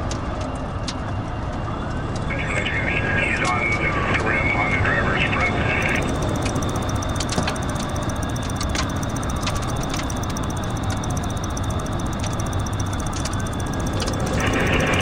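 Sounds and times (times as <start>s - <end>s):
deep vehicle noise: 5.6s - 15.0s
faint clicks: 5.8s - 15.0s.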